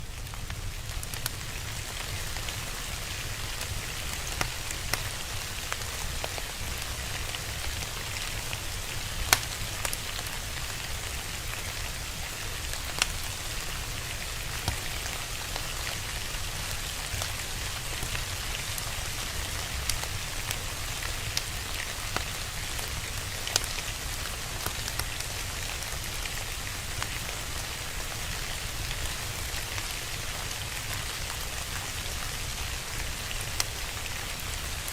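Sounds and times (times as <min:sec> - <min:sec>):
steady rain falling: 0:00.0 - 0:34.9
crackling fire pops: 0:00.2 - 0:11.6, 0:12.6 - 0:28.0.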